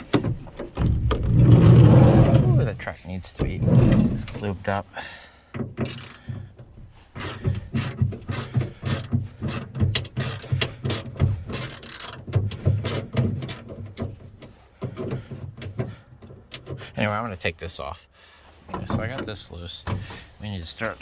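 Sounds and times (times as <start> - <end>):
ratchet wrench clicking: 5.8 - 6.2.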